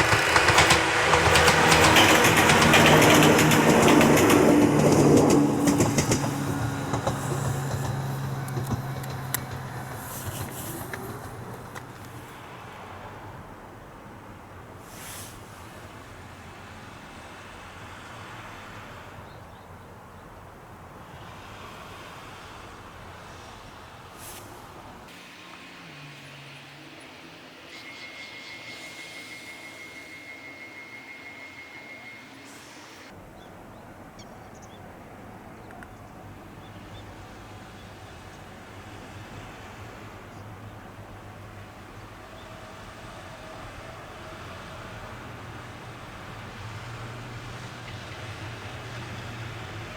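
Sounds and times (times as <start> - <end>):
electric train running: 0.0 - 13.5, 23.3 - 33.2, 36.3 - 49.9
faint bird chirps: 26.2 - 34.8.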